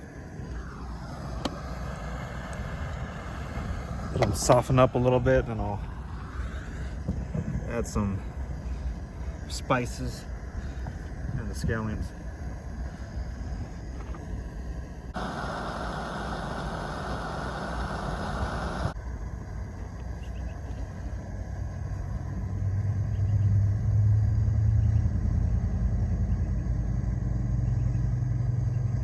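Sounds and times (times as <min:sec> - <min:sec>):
steady hiss: 0:00.0 - 0:22.9
vehicle engine rumble: 0:00.0 - 0:29.0.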